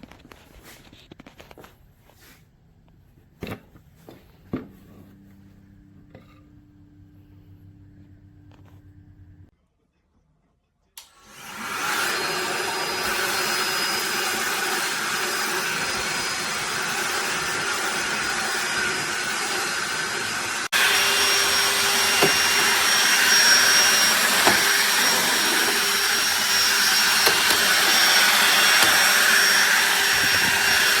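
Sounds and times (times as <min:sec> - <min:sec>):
handheld vacuum whirring: 0:11.0 - 0:31.0
vacuum switch click: 0:26.2 - 0:29.8.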